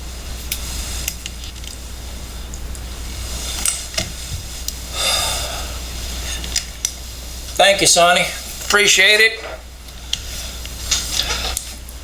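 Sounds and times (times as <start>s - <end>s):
steady low hum: 0.0s - 12.0s
rustling scrape: 0.1s - 4.9s, 10.2s - 11.8s.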